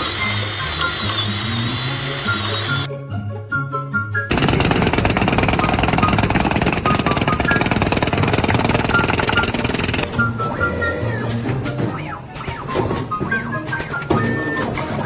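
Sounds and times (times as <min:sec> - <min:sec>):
jackhammer hammering: 0:00.0 - 0:02.9, 0:04.3 - 0:11.9
background music: 0:00.0 - 0:15.0.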